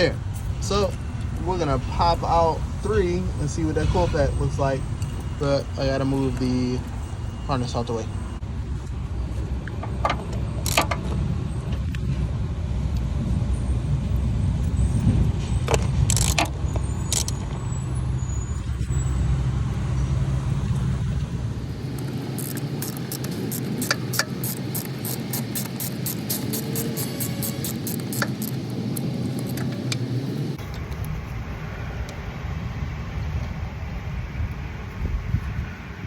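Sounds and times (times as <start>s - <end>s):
clicks and knocks of engine parts: 9.6s - 12.0s, 15.6s - 17.7s, 20.7s - 31.2s
car engine idling with misfire: 14.0s - 32.3s.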